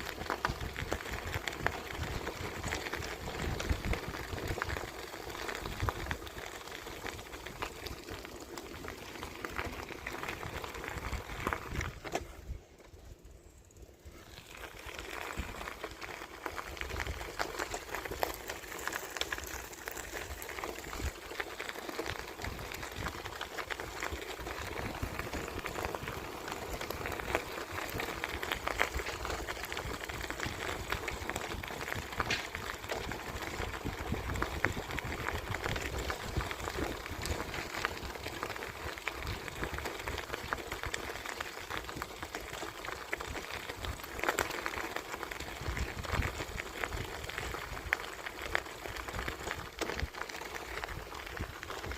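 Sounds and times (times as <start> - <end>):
wind on the microphone: 0.0 - 4.9, 10.4 - 12.6, 24.5 - 38.0
bicycle tyres rolling on a path: 0.0 - 51.9.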